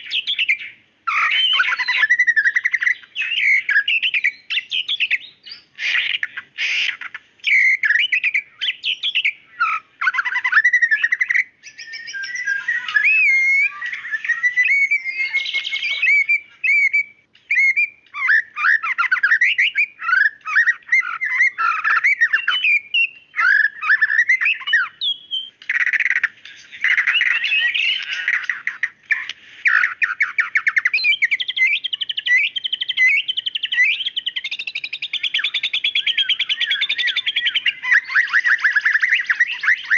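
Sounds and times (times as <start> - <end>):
bird singing trills and whistles: 0.0 - 39.9.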